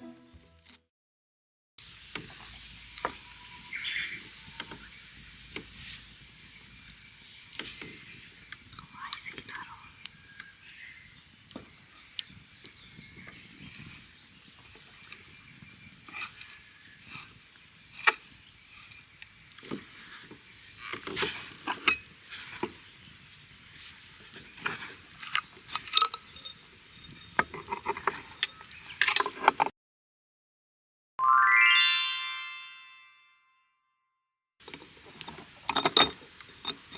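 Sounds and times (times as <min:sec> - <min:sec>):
camping gear clicks and clinks: 0:06.8 - 0:29.7, 0:34.6 - 0:36.9.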